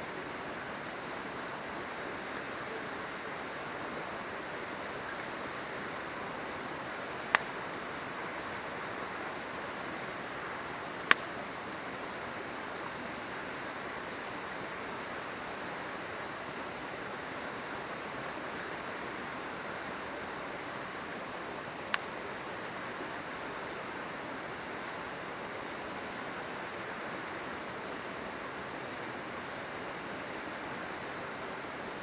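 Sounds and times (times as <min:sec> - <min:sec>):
river water rushing: 0:00.0 - 0:32.0
campfire wood popping: 0:07.2 - 0:07.6, 0:11.0 - 0:11.4, 0:21.8 - 0:22.2.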